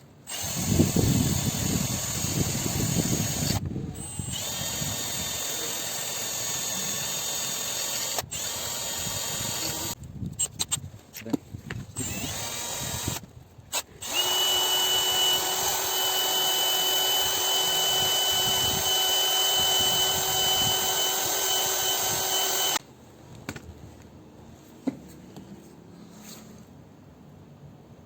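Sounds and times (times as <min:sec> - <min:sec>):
power tool whining: 0:00.3 - 0:10.5, 0:12.0 - 0:22.8.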